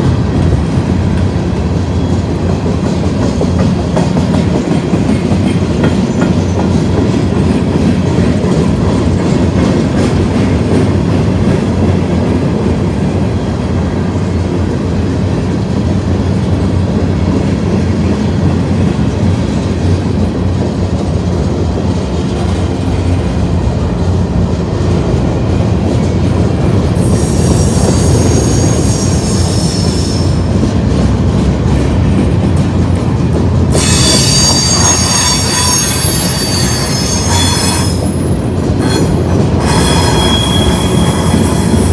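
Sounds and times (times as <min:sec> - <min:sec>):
freight train rolling on rails: 0:00.0 - 0:41.9
high-pitched wheel squeal: 0:27.0 - 0:30.4, 0:33.8 - 0:41.9.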